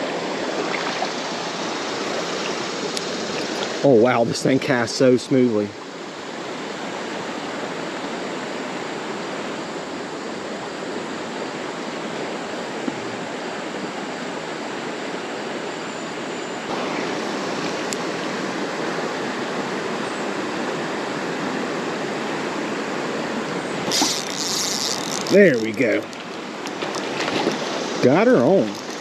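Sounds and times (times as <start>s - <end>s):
creek water pouring over dam: 23.8s - 29.0s.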